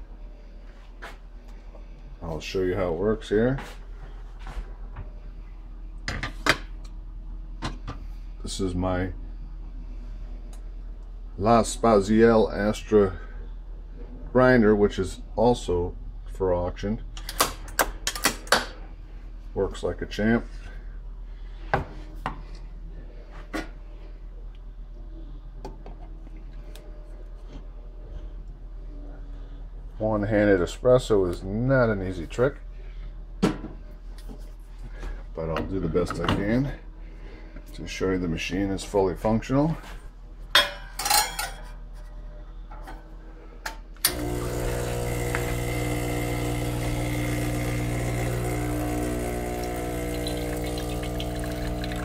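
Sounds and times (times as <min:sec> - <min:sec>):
steady low hum: 0:00.0 - 0:52.0
espresso machine pump humming: 0:44.0 - 0:52.0.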